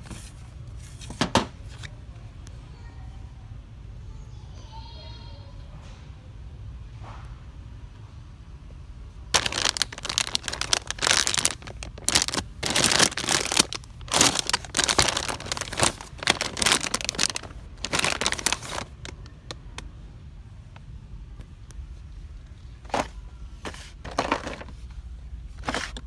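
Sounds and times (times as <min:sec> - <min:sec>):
plastic packaging crinkling: 0:09.3 - 0:19.8, 0:22.8 - 0:24.9.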